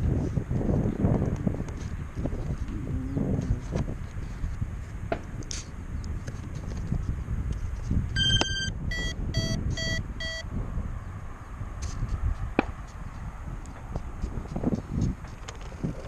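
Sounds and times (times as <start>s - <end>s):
wind rumble on microphone: 0.0s - 16.0s
electronic beeps: 8.2s - 10.5s.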